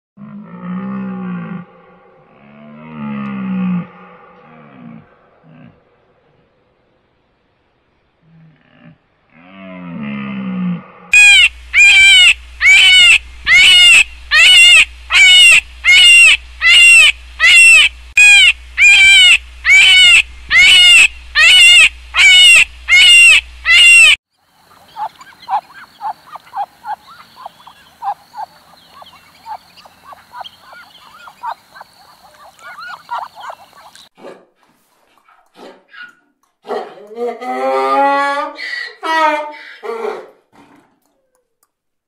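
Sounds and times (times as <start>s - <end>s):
loud high-pitched animal call: 11.1s - 24.2s.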